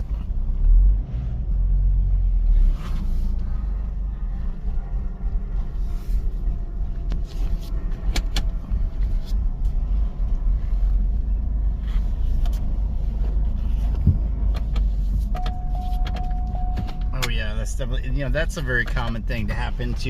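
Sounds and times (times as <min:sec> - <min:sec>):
car engine rumble: 0:00.0 - 0:20.0
steady high tone: 0:15.4 - 0:18.2.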